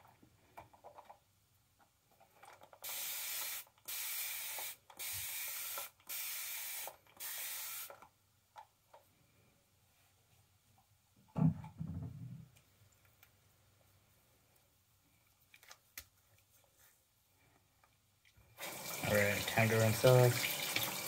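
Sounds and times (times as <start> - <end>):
short hissing sprays: 2.8 - 8.0.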